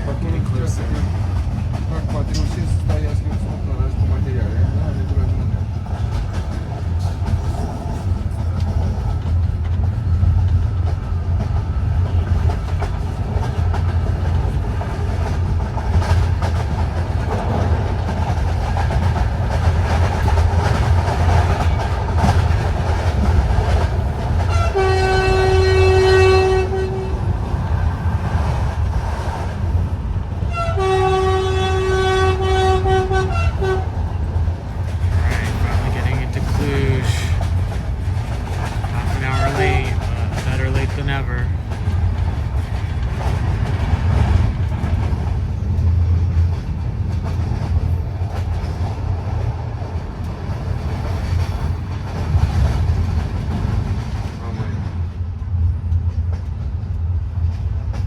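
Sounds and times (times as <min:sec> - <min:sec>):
train rumble and rail clatter: 0:00.0 - 0:58.0
train horn blasts: 0:24.5 - 0:27.3, 0:30.5 - 0:34.0, 0:39.4 - 0:40.1.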